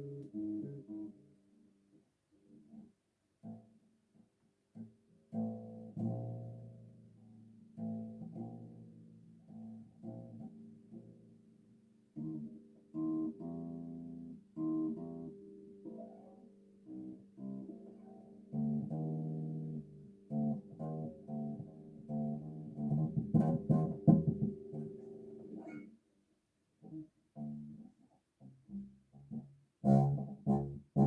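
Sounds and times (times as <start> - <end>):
bass guitar plucked notes: 18.5 - 25.9, 28.7 - 31.0.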